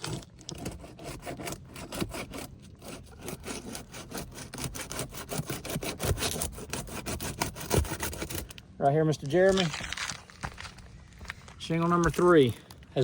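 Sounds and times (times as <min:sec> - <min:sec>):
tool scraping asphalt shingle: 0:00.0 - 0:13.0.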